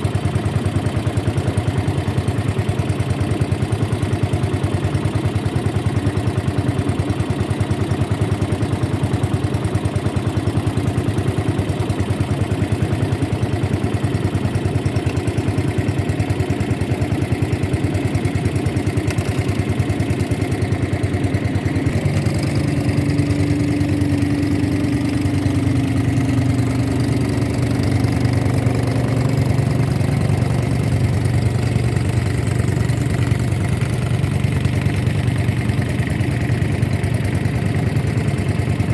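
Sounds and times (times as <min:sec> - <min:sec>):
motorboat engine running: 0:00.0 - 0:38.9
steady higher hum: 0:21.7 - 0:38.5.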